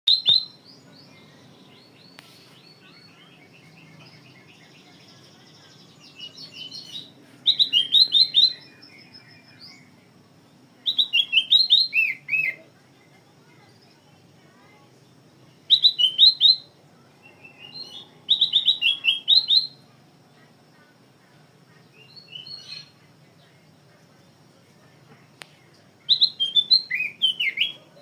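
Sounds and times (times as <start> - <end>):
bulbul singing whistled notes: 0.1 - 4.8, 6.0 - 9.9, 10.8 - 12.6, 15.6 - 19.8, 22.0 - 23.0, 26.1 - 27.8
soft bird twittering: 0.1 - 19.9, 21.7 - 28.0.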